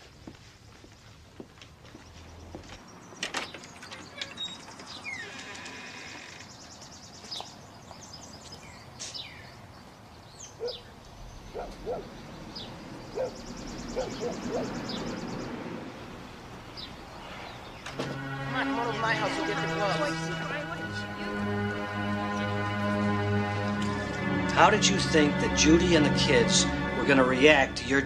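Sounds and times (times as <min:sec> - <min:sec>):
birds chirping: 0:01.8 - 0:28.0
fast high bird trill: 0:10.4 - 0:15.6.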